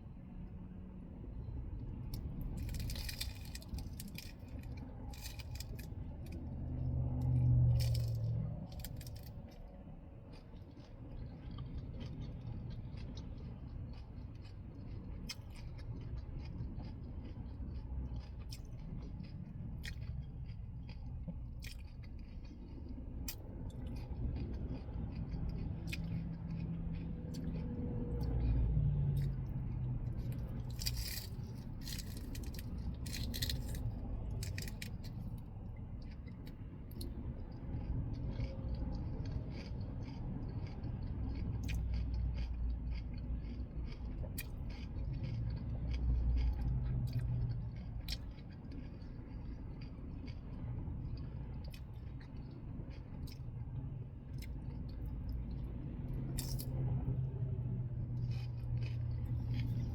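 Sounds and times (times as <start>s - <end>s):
chewing and crunching lettuce: 1.8s - 59.9s.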